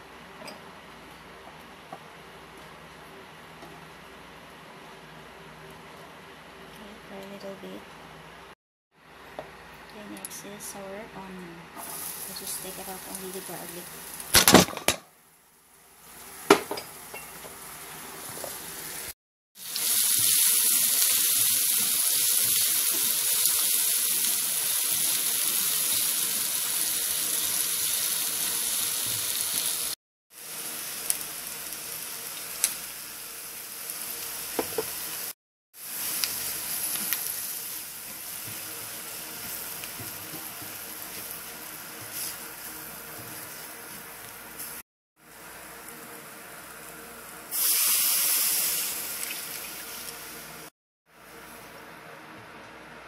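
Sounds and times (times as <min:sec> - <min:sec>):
onion frying in a pan: 0:11.8 - 0:51.8.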